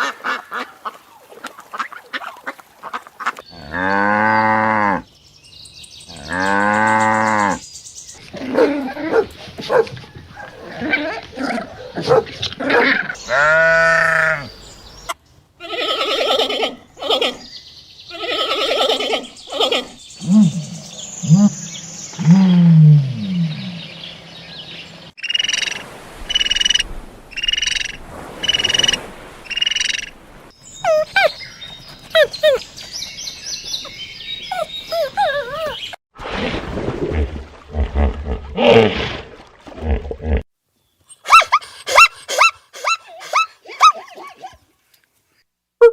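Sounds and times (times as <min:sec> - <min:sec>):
chirping bird-like calls: 0:18.1 - 0:30.1.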